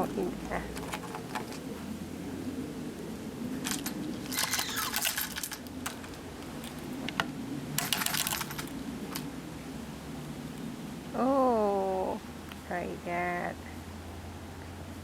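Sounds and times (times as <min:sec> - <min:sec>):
metal chain and cup rattling: 0:03.6 - 0:06.2, 0:07.8 - 0:09.2.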